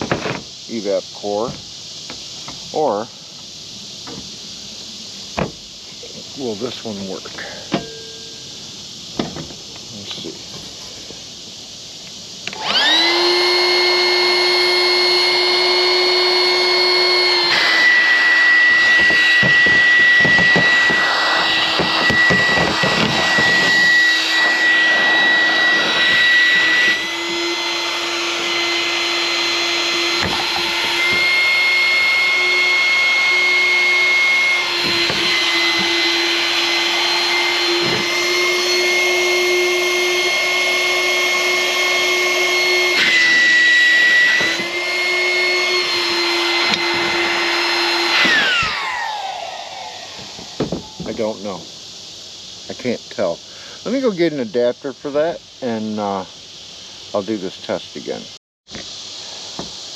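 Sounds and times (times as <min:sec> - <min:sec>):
electric blower motor whining: 0:12.4 - 0:51.6.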